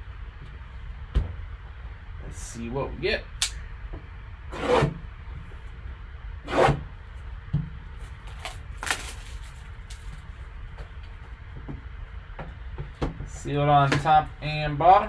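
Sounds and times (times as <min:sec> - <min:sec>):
cardboard and wrapping rustling: 0:08.0 - 0:11.4.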